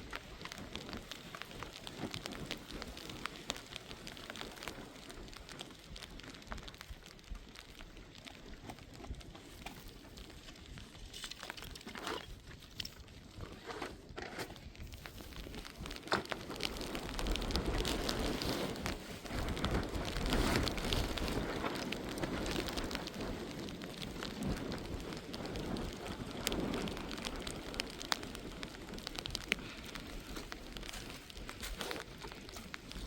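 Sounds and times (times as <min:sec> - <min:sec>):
rain falling: 0:00.0 - 0:13.8, 0:14.6 - 0:33.0
crackles: 0:00.0 - 0:33.0
wind buffeting microphone: 0:14.6 - 0:33.0.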